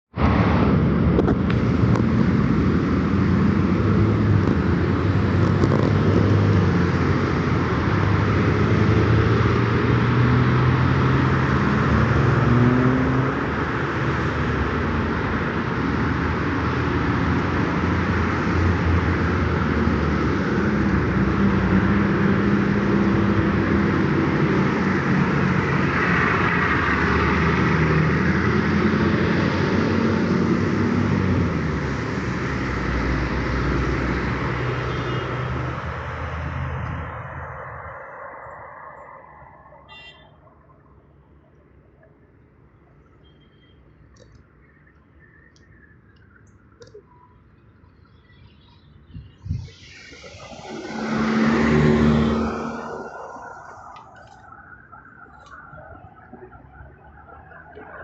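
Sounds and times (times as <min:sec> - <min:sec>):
road and tyre noise: 0:00.0 - 0:58.0.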